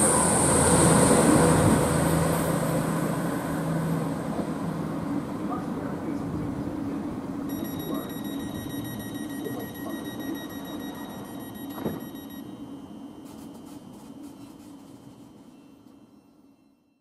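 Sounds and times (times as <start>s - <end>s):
train rumble and hum: 0.0s - 12.3s
high-pitched electronic tone: 7.5s - 12.6s.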